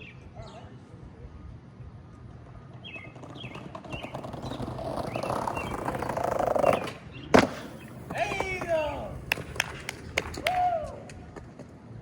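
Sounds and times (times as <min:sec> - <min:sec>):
skateboard wheels rolling on pavement: 0:01.5 - 0:12.0
birds chirping: 0:02.7 - 0:09.6.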